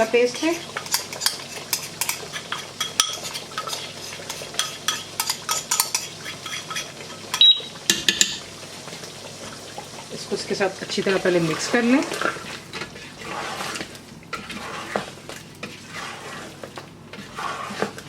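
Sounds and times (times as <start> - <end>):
spoon clinking against pot: 4.6 - 8.4.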